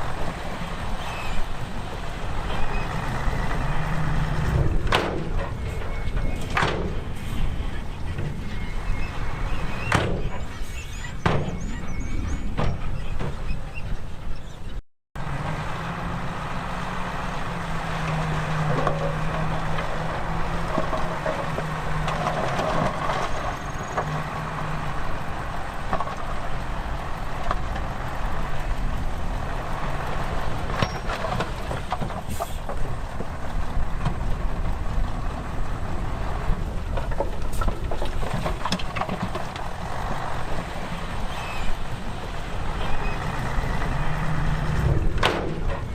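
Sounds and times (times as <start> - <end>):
diesel earthmoving machines running: 0.0 - 45.9
sharp knocks and clanks: 4.5 - 7.0, 11.2 - 11.8, 44.8 - 45.9.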